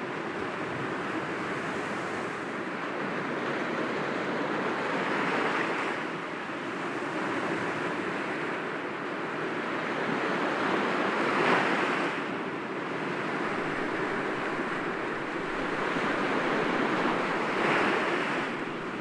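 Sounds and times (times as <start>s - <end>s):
waves breaking against rocks: 13.0s - 19.0s.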